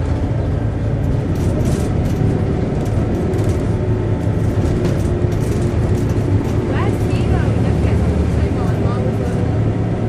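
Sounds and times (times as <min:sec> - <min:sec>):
bus diesel engine running: 0:00.0 - 0:10.0.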